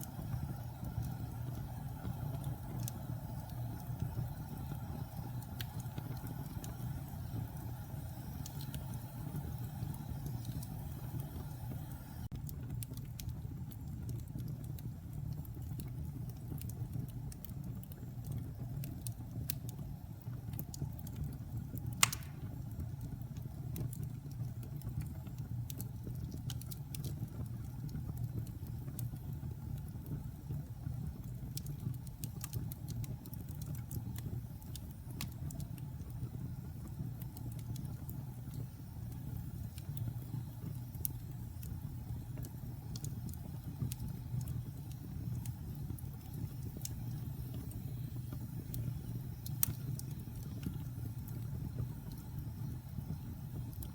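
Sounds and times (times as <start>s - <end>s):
fire crackling: 0.0s - 53.9s
flame rumbling: 0.0s - 53.9s
loud log pop: 22.0s - 22.4s.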